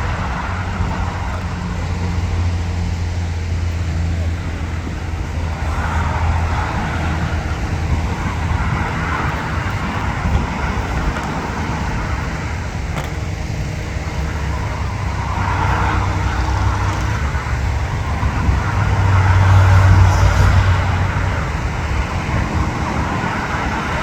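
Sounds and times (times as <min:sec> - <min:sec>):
low engine rumble: 0:00.0 - 0:24.0.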